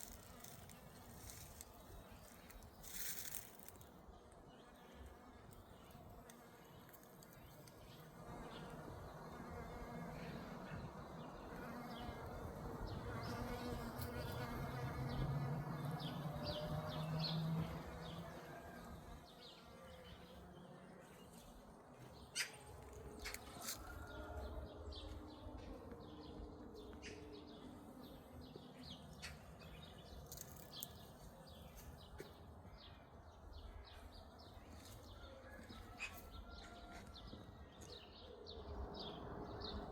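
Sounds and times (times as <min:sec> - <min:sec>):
bee buzzing: 0:04.9 - 0:21.6.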